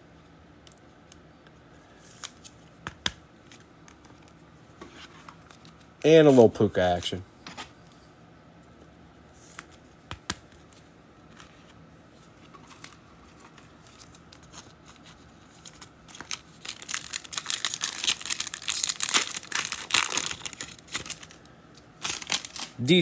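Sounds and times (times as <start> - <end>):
plastic wrapper tearing and crinkling: 15.6 - 22.8.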